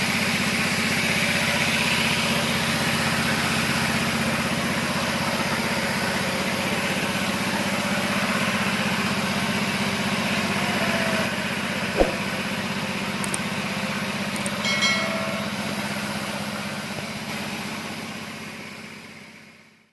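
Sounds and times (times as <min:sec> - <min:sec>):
sharp click: 0:12.0 - 0:12.3.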